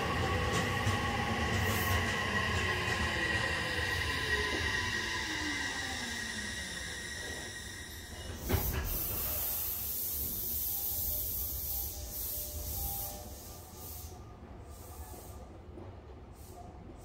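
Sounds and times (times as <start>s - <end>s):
compressed air release hiss: 8.4s - 15.4s.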